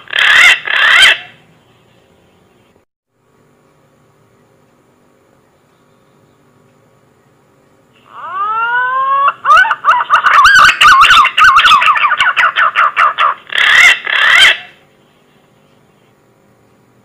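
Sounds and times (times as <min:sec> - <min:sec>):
pigeon lure call whistling: 0:08.1 - 0:14.8.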